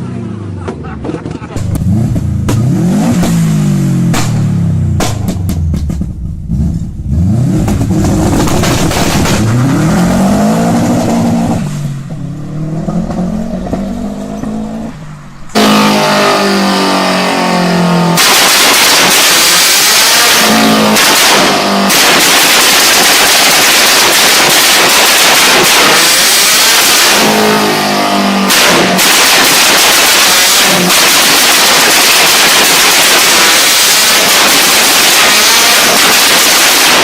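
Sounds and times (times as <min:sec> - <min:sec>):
car engine revving: 0:00.1 - 0:37.0
crackling exhaust pops: 0:01.0 - 0:03.4, 0:04.1 - 0:06.9, 0:07.6 - 0:09.7.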